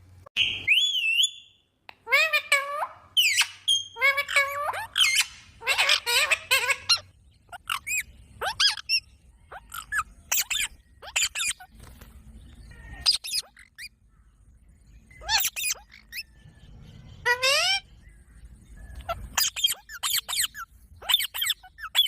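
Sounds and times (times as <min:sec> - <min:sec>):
parrot chirping and squawking: 0:02.0 - 0:11.7, 0:13.0 - 0:14.0, 0:15.2 - 0:16.3, 0:17.2 - 0:17.9, 0:19.0 - 0:22.0.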